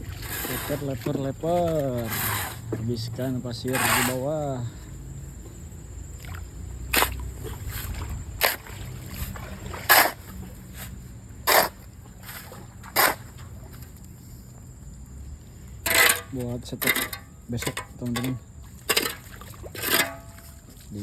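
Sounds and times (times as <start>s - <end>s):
shovel scraping wet sand: 0.0s - 4.7s, 6.9s - 13.6s, 15.8s - 20.6s.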